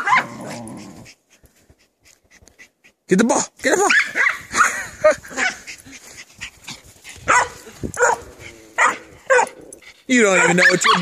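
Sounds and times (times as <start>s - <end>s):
dog barking: 0.0s - 0.5s, 3.9s - 4.7s, 7.3s - 9.6s, 10.3s - 11.0s.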